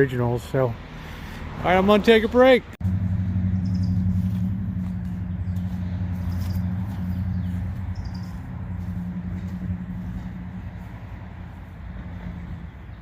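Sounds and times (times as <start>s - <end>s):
birds chirping: 0.2s - 13.0s
mower engine running: 2.8s - 12.9s.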